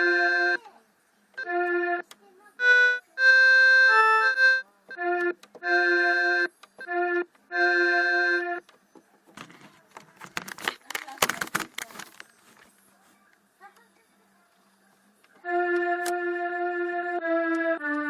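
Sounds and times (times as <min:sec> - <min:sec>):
electronic keyboard chords: 0:00.0 - 0:00.7, 0:01.4 - 0:08.7, 0:15.4 - 0:18.0
keyboard run of notes: 0:00.0 - 0:00.7, 0:01.3 - 0:08.8, 0:15.3 - 0:18.0.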